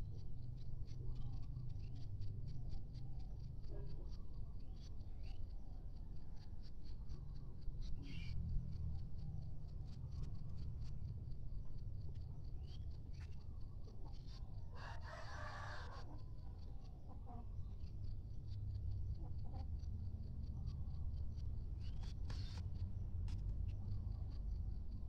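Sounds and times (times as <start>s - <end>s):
faint chicken clucks: 0.0s - 25.0s
steady low rumble: 16.3s - 25.0s.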